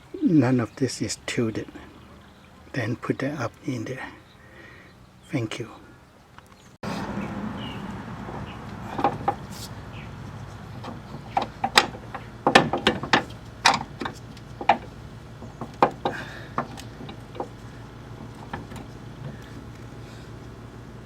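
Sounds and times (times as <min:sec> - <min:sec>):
metal clanks and knocks: 0:08.2 - 0:19.7.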